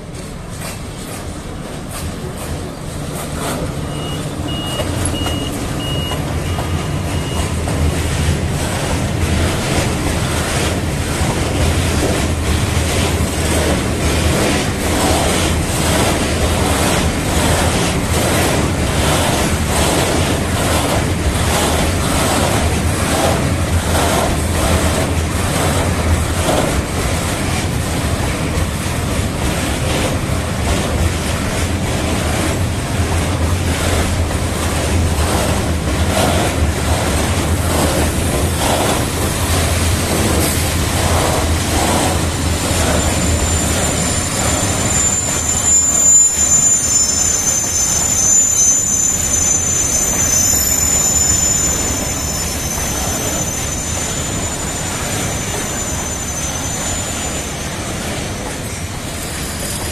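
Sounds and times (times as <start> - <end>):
train hum: 0.0 - 59.9
high electronic beeps: 3.8 - 7.6.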